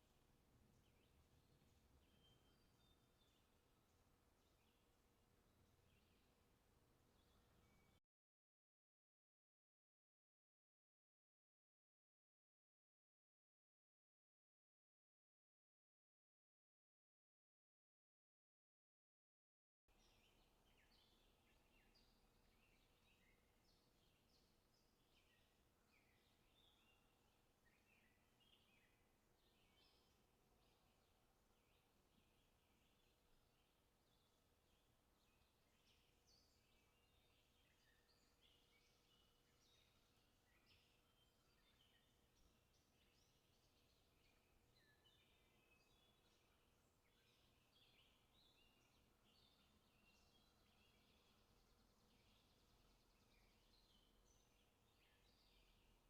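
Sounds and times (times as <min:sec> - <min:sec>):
faint birdsong chirps: 0:00.0 - 0:08.0, 0:19.9 - 0:56.0.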